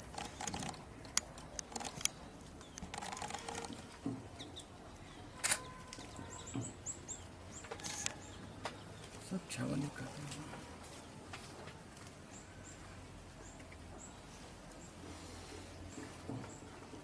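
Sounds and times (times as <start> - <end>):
sharp clicks: 0.0 - 3.8.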